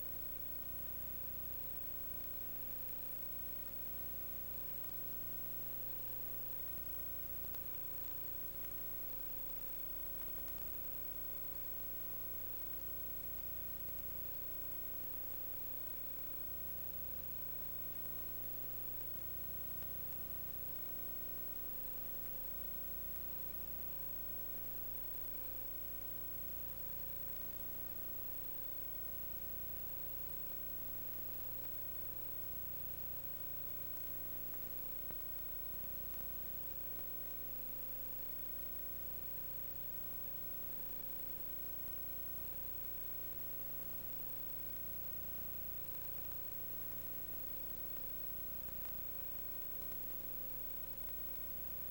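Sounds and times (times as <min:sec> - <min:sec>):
electrical hum and hiss: 0:00.0 - 0:51.9.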